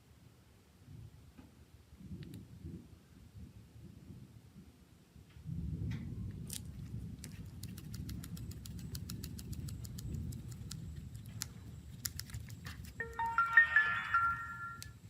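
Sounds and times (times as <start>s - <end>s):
low steady rumble: 5.5s - 15.0s.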